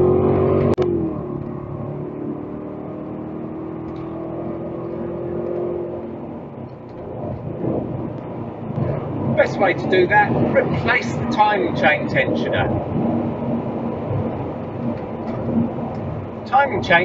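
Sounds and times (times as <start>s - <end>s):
car engine running: 0.0s - 17.0s
road and tyre noise: 0.0s - 17.0s.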